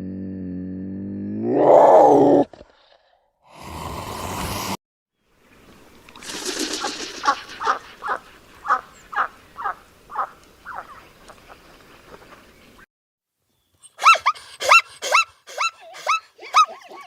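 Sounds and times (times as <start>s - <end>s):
animal calling: 7.2s - 11.0s.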